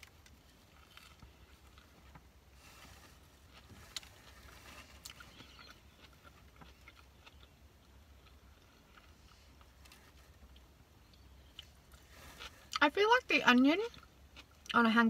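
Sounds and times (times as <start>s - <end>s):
low steady hum: 0.0s - 15.0s
chewing food: 3.5s - 12.9s, 13.5s - 14.8s.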